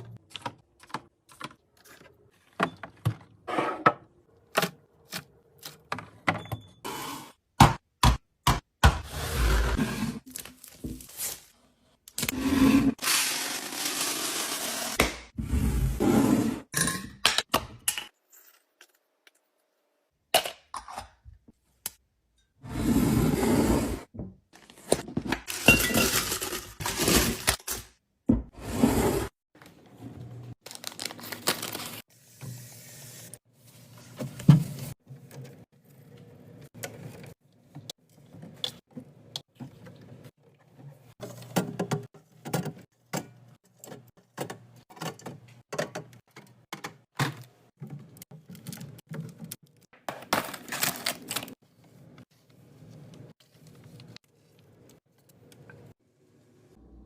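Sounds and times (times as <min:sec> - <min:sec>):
jars and bottles clinking: 0:25.3 - 0:26.8.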